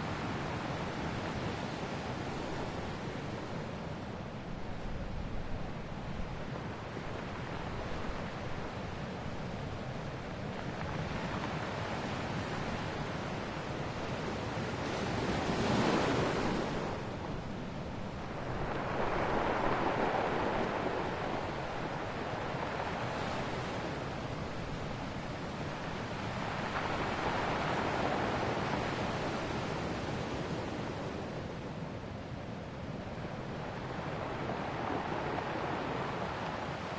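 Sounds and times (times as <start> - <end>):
steady surf wash: 0.0 - 36.9
ocean waves breaking: 10.6 - 31.6, 33.0 - 36.9.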